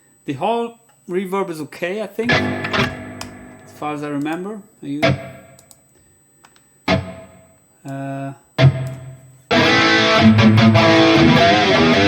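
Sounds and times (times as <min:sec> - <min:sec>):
electric guitar with reverb and chorus: 0:02.3 - 0:04.4, 0:05.0 - 0:05.7, 0:06.9 - 0:07.5, 0:08.6 - 0:12.0.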